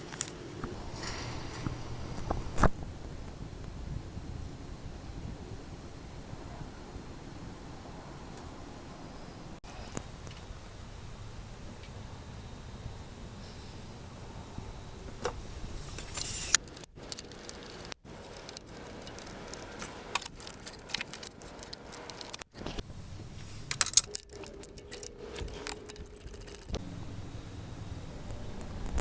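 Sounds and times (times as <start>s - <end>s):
metal tools clinking and rattling: 23.4s - 26.7s.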